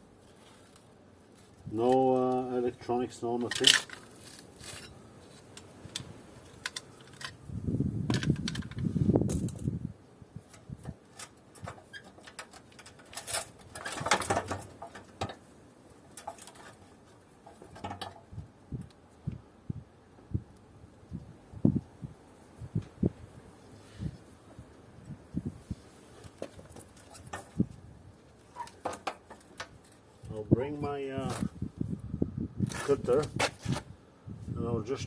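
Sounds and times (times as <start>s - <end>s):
clicks and clunks of metal parts: 3.4s - 7.4s, 8.1s - 9.7s, 10.5s - 15.4s, 16.1s - 18.3s, 26.2s - 27.7s, 28.5s - 30.3s.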